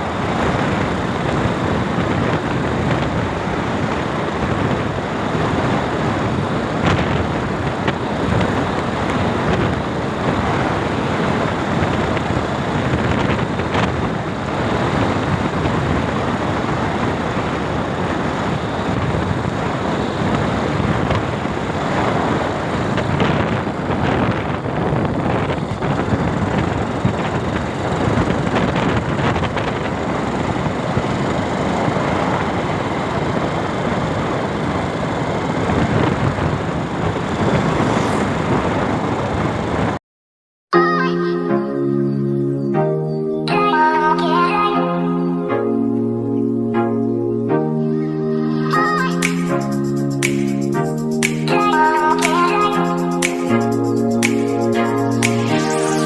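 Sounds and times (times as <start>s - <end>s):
motorcycle road noise: 0.0s - 40.0s
wind rushing over microphone: 0.0s - 40.0s.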